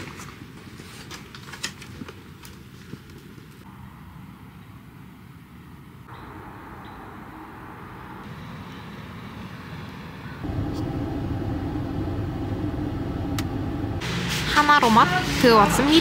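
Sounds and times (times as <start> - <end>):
road noise: 2.5 - 16.0
car engine rumble: 10.3 - 16.0.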